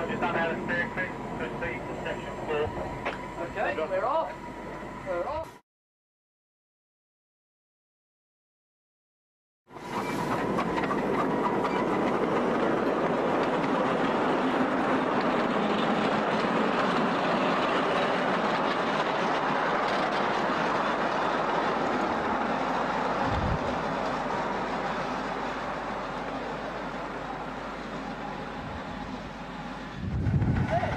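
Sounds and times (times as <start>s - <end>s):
miniature steam train passing: 0.0s - 5.4s, 9.7s - 30.9s.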